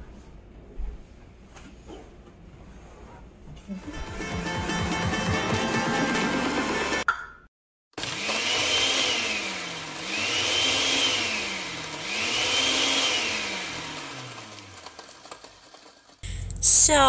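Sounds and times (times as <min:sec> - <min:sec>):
electric blender whirring: 0:08.0 - 0:16.6.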